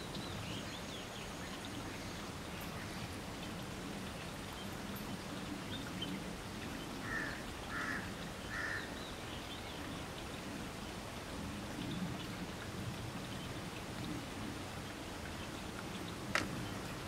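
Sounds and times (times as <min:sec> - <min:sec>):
bird calls: 0:00.0 - 0:10.4
rain hiss: 0:00.0 - 0:17.0.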